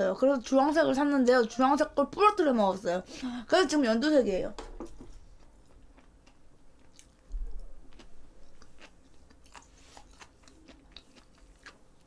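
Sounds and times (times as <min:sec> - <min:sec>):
chewing food: 0:05.2 - 0:12.0.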